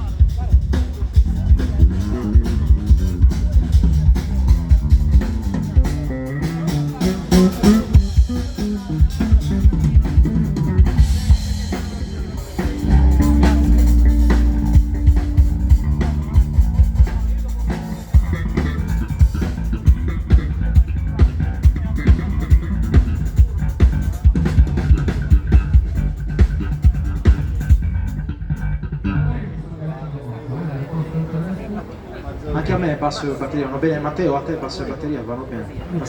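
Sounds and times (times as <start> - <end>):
drum kit groove: 0.0 - 28.7
bass guitar: 0.0 - 29.8.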